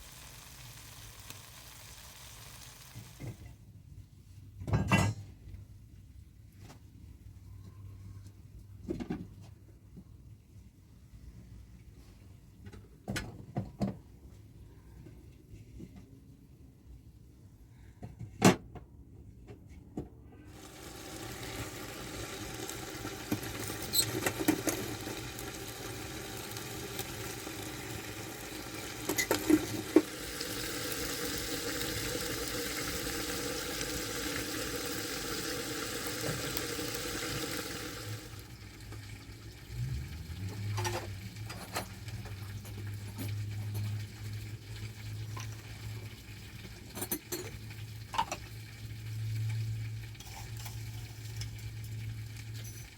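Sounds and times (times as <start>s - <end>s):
food sizzling over fire: 0.0s - 3.4s, 20.5s - 52.9s.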